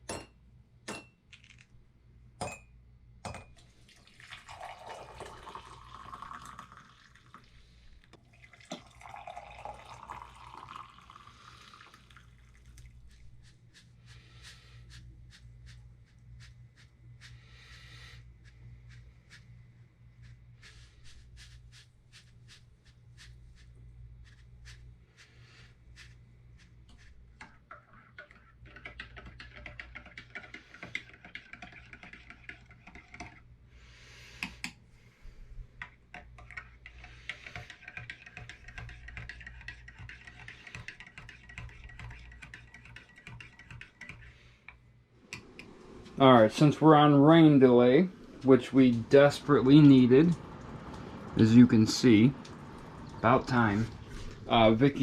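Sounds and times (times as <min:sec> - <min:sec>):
low steady hum: 0:00.0 - 0:28.6, 0:44.3 - 0:55.0
water dripping and running: 0:03.6 - 0:16.6, 0:45.2 - 0:55.0.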